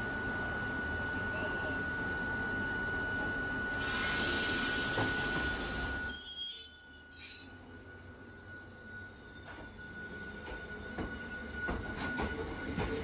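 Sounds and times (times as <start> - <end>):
electric train hum: 0.0 - 13.0
train hiss: 3.7 - 5.9
high squeal: 3.8 - 12.4.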